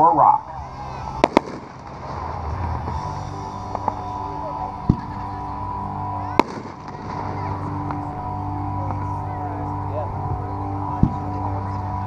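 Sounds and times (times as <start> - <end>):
fireworks popping: 1.2 - 3.0, 6.4 - 7.4.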